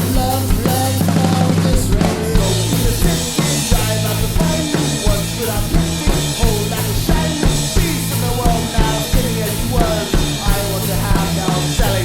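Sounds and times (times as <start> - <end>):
drum kit beat: 0.0 - 12.0
instrumental rock band: 0.0 - 12.0.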